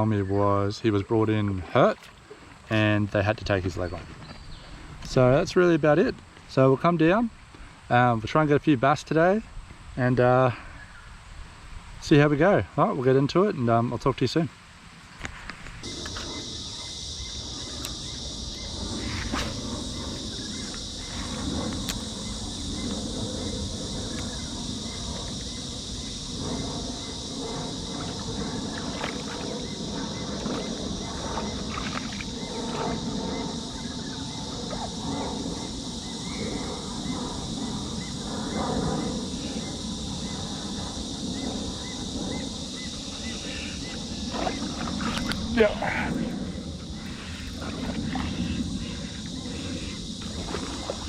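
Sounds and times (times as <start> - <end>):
insect chorus drone: 0.0 - 51.0.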